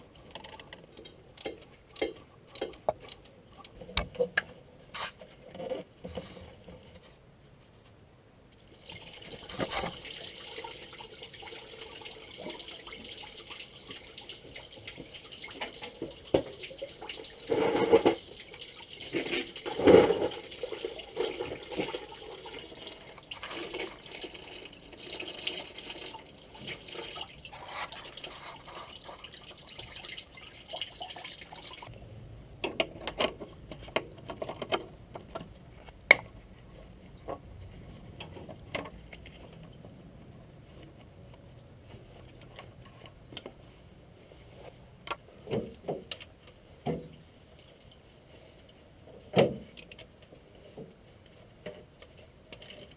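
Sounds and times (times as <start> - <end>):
coolant pouring and splashing: 8.6 - 31.9.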